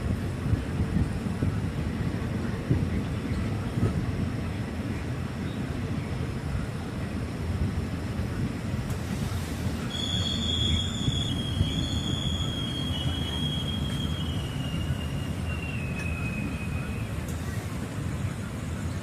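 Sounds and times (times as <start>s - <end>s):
train low rumble: 0.0s - 19.0s
high-pitched wheel squeal: 9.9s - 17.2s.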